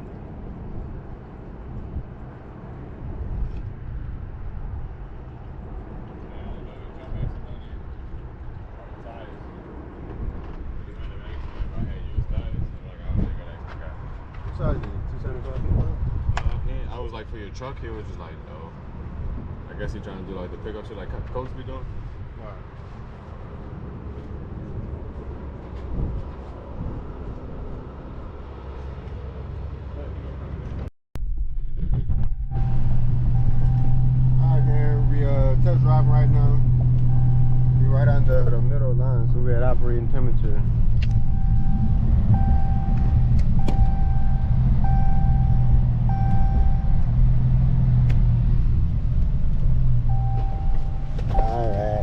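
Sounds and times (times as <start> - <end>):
car engine and road rumble: 0.0 - 52.0
low engine hum: 0.0 - 52.0
dashboard chime beeping: 37.1 - 38.0, 41.1 - 47.0, 50.1 - 51.8.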